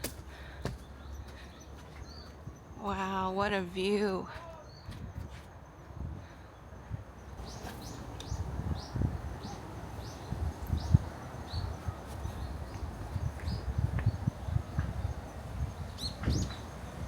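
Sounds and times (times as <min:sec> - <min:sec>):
wind rumble on microphone: 0:04.7 - 0:17.0.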